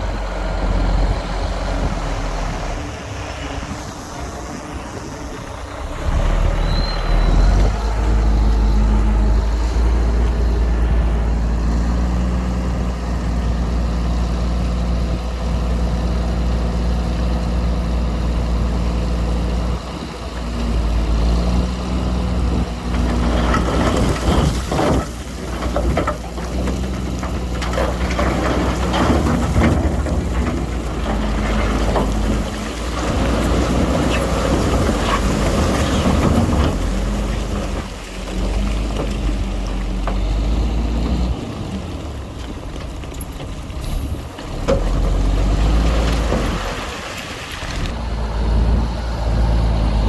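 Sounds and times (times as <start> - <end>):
diesel engine running: 0.0 - 50.0
high squeal: 6.1 - 9.0
clattering rushing noise: 22.7 - 40.3.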